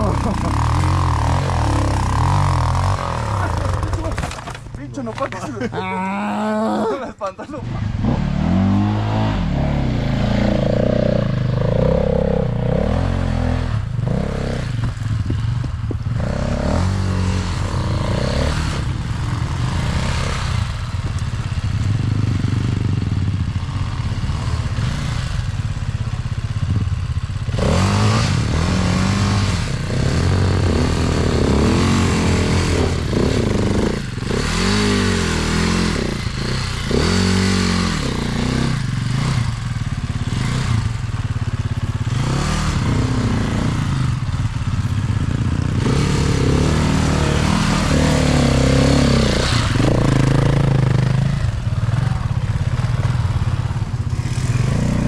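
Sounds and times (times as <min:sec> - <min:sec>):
dirt bike engine revving: 0:00.0 - 0:04.6, 0:07.6 - 0:25.8, 0:26.6 - 0:55.0
knocks and clattering: 0:03.8 - 0:05.4.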